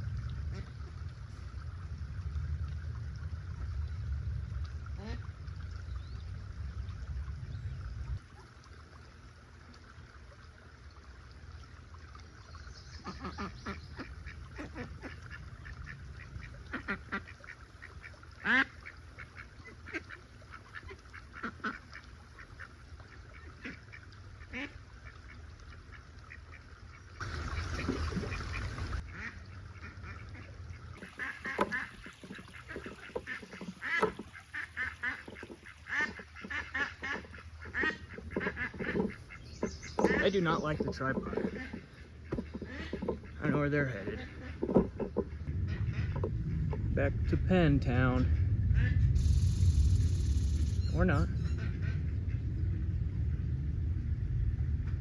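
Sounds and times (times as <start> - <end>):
low rumble: 0.0 - 8.4, 42.7 - 55.0
ducks quacking: 0.4 - 0.9, 13.0 - 52.7
short burst of noise: 48.4 - 52.4.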